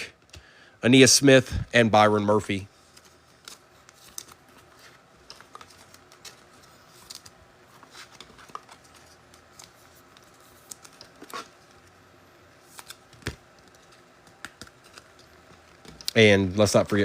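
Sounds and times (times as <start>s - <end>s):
cards clicking and tapping: 12.8s - 16.2s.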